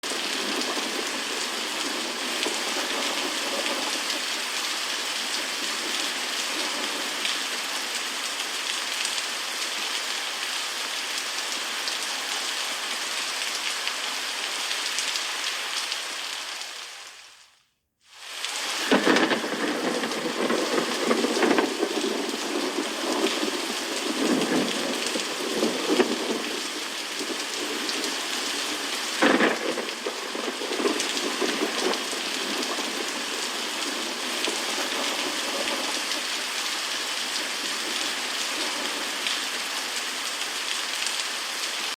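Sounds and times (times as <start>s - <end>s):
thunder rumbling: 0.0s - 8.4s, 18.6s - 40.2s
heavy rain: 0.0s - 41.9s.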